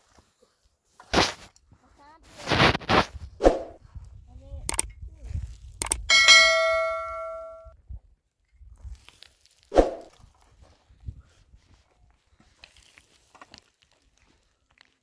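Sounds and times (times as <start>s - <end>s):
metal object ringing: 6.1s - 7.7s.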